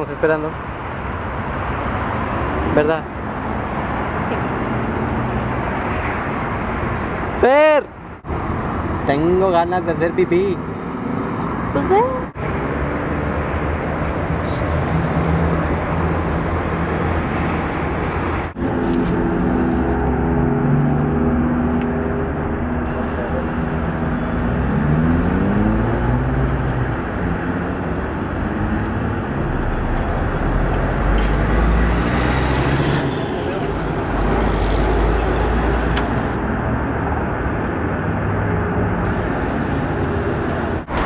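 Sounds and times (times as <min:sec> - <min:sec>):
car engine: 0:10.6 - 0:41.0
road noise inside car: 0:11.4 - 0:41.0.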